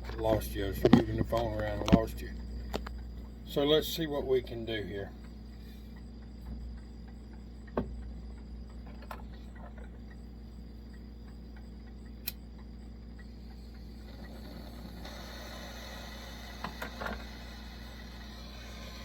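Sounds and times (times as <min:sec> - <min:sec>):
steady low hum: 0:00.0 - 0:19.0
sharp metallic clicks: 0:10.9 - 0:14.4.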